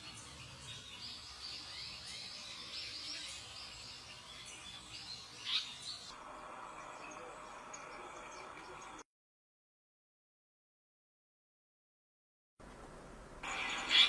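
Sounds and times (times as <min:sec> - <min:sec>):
small birds chirping: 0:00.0 - 0:09.0, 0:13.4 - 0:14.0.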